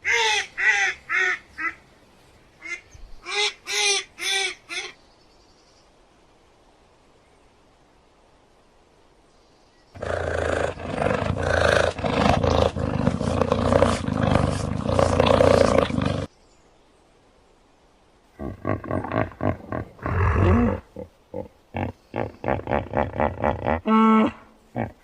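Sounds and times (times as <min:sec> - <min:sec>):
animal roaring and growling: 0:10.0 - 0:16.3, 0:18.4 - 0:21.1
roaring grunts: 0:10.0 - 0:16.3, 0:18.4 - 0:25.0.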